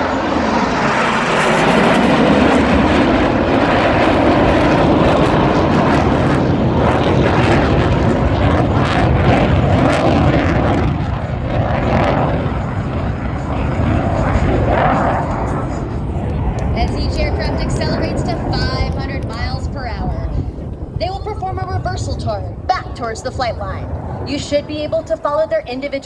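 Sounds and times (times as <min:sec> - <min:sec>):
jets roaring past low: 0:00.0 - 0:26.0.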